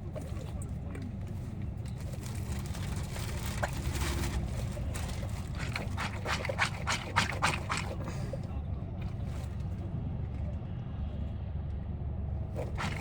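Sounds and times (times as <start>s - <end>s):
car interior engine and road rumble: 0.0s - 6.0s.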